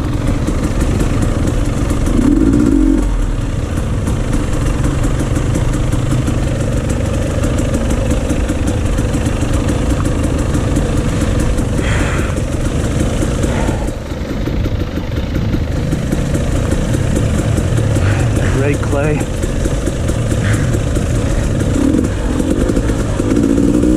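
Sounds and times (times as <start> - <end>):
dirt bike engines idling: 0.0 - 23.9.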